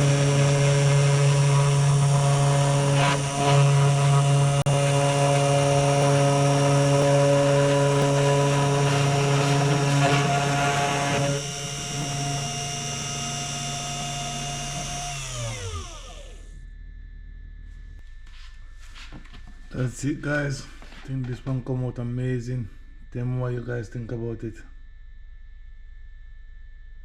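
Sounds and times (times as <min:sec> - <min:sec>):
router bit cutting wood: 0:00.0 - 0:16.5
spindle motor whining: 0:00.0 - 0:16.6.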